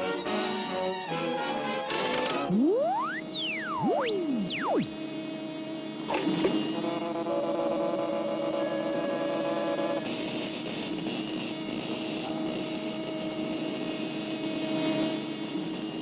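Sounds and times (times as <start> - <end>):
machine humming and whirring: 1.9 - 15.5
faint high tone: 2.5 - 4.9.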